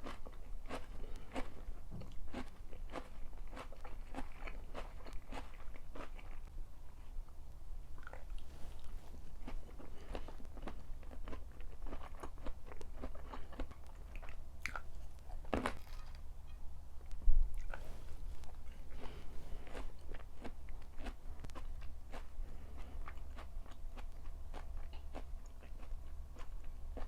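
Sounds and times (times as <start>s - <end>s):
chewing and crunching food: 0.0s - 16.4s, 17.0s - 27.0s.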